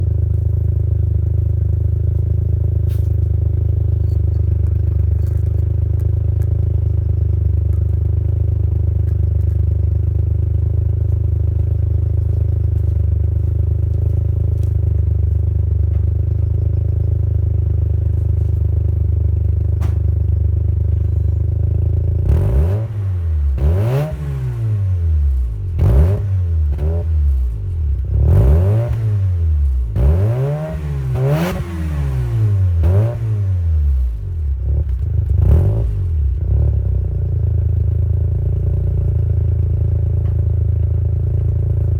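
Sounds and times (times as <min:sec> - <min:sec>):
rotary engine idling and revving: 0:20.7 - 0:41.9.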